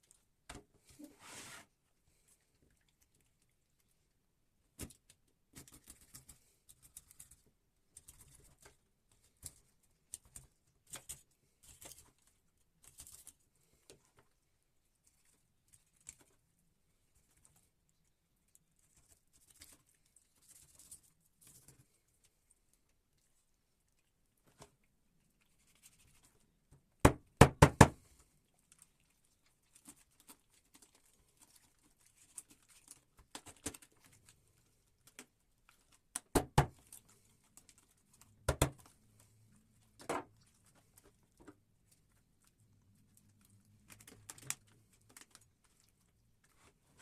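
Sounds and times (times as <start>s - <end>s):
knocks and clicks of hard objects: 27.0s - 28.0s, 36.2s - 36.8s, 38.5s - 38.8s.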